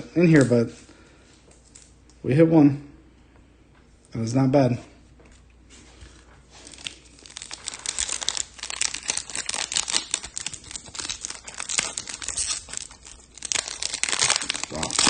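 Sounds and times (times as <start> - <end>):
foil wrapper tearing and crinkling: 6.5 - 15.0.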